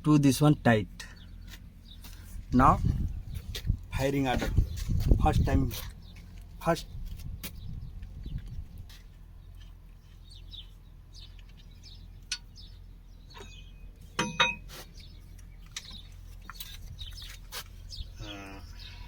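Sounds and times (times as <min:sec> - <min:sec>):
birds chirping: 0:00.0 - 0:19.0
sharp metallic clink: 0:13.4 - 0:14.7.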